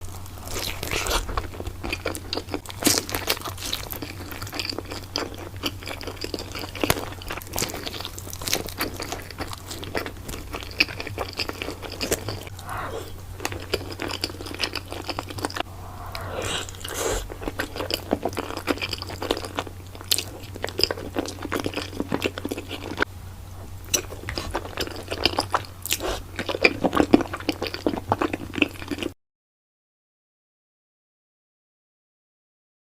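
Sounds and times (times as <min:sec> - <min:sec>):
crunching and chewing pizza: 0:00.0 - 0:12.5, 0:17.4 - 0:29.2
steady low hum: 0:11.6 - 0:21.2.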